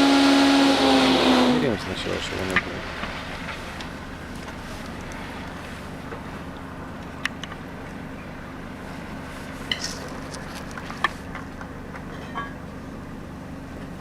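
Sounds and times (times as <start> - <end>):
edging saw humming: 0.0 - 6.9.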